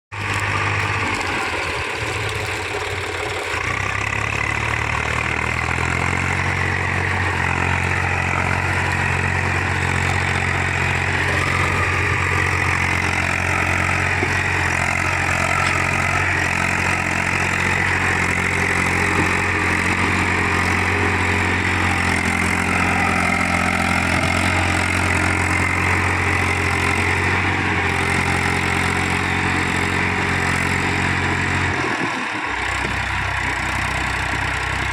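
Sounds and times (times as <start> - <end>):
tractor diesel engine idling: 0.1 - 34.9.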